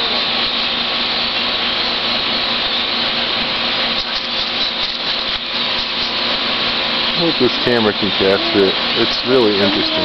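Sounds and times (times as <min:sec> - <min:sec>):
large flock of birds calling: 0:07.1 - 0:10.0.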